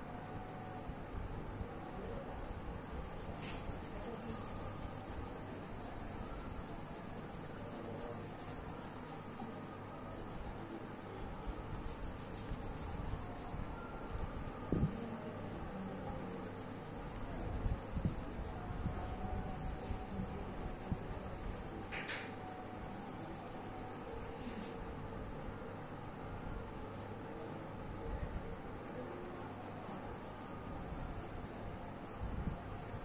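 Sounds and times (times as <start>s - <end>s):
colouring tool rubbing on paper: 2.4s - 15.0s, 16.1s - 24.5s, 29.1s - 30.6s.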